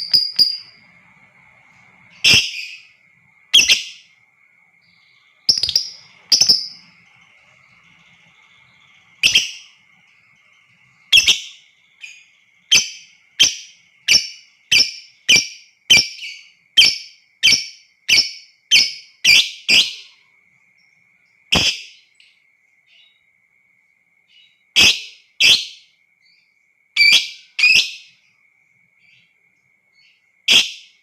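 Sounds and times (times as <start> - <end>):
faint high whine: 0.0 - 19.2
bird shrill calls: 2.2 - 2.9, 3.5 - 4.1, 8.4 - 9.8, 11.1 - 20.1.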